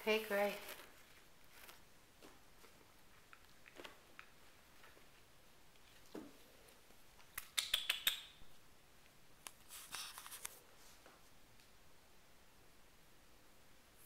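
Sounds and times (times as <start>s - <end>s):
kittens clicking and scratching: 0.6s - 6.2s.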